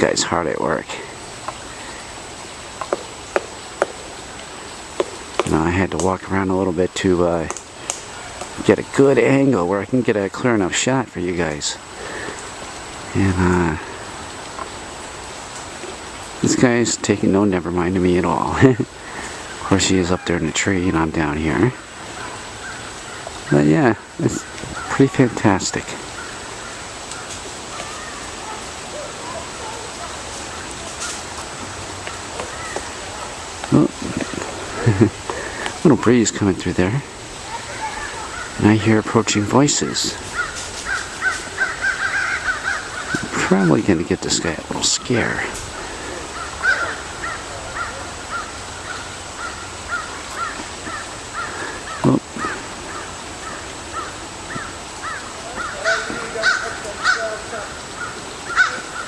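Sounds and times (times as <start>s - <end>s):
distant bird calls: 0.0s - 59.0s
steady outdoor hiss: 0.0s - 59.0s.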